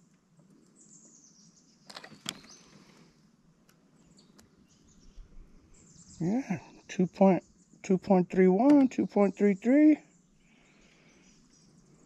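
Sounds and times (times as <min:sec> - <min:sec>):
faint bird chirps: 0:00.5 - 0:03.2, 0:03.9 - 0:08.0, 0:09.4 - 0:12.0
sharp clicks: 0:08.6 - 0:09.0.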